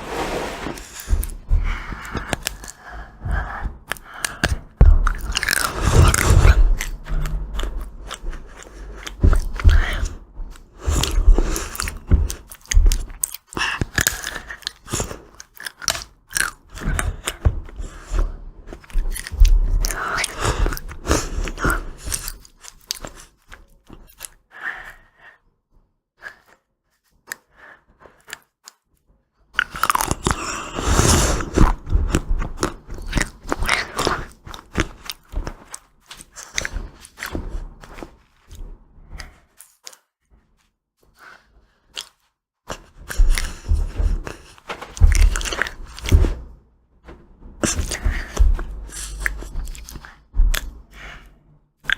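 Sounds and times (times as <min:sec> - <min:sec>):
crunchy chewing: 0:03.9 - 0:24.4, 0:29.6 - 0:38.6, 0:47.6 - 0:51.9.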